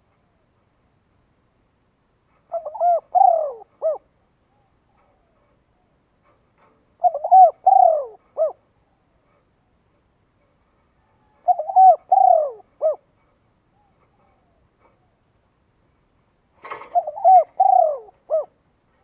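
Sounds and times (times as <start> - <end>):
bird calling: 2.5 - 6.0, 7.0 - 9.1, 11.0 - 15.3, 16.6 - 18.6.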